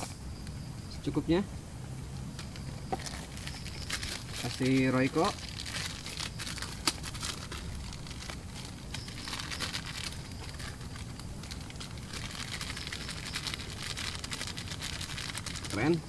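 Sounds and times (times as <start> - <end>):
cooking fire crackling: 0.0 - 16.0.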